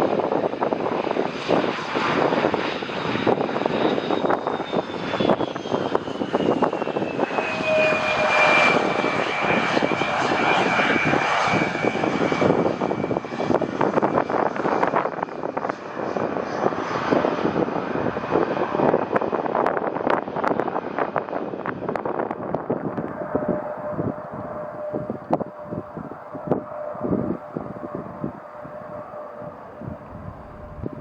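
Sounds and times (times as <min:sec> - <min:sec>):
high jet engine whine: 0:00.0 - 0:31.0
jet engines rushing: 0:00.0 - 0:31.0.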